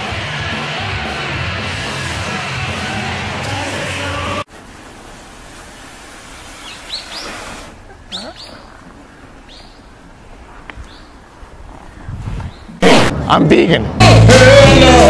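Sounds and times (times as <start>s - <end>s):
loud music: 0.0s - 4.5s, 14.0s - 15.0s
small birds chirping: 6.6s - 12.8s.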